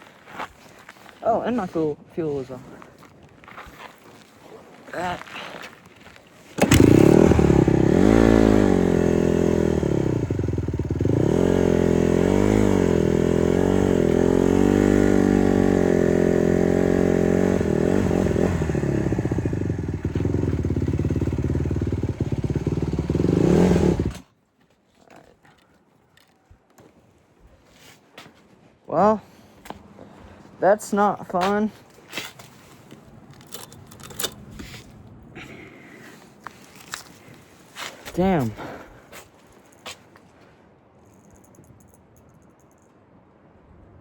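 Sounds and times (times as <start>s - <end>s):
dirt bike engine revving: 6.6s - 24.2s.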